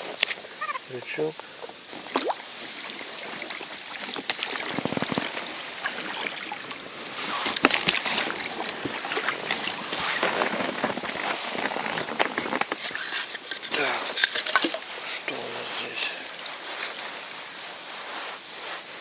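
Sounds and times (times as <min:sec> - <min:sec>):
water sloshing around a boat: 0:00.0 - 0:19.0
fishing gear clicks and knocks: 0:07.4 - 0:09.7, 0:10.4 - 0:17.6.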